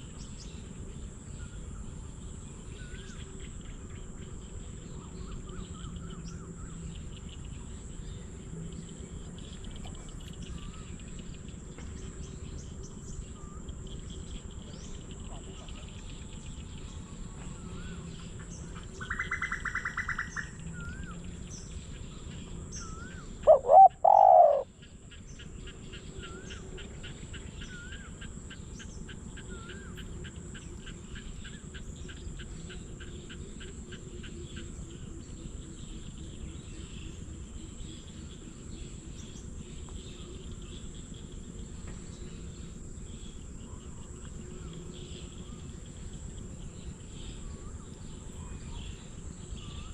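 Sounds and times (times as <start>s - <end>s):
steady insect noise: 0.0s - 49.9s
small birds chirping: 2.6s - 49.9s
dove cooing: 23.4s - 24.7s.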